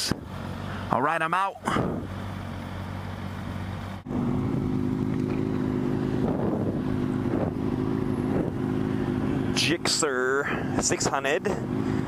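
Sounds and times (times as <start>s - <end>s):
motorcycle engine running: 0.0s - 12.0s
wind on microphone: 6.2s - 8.7s.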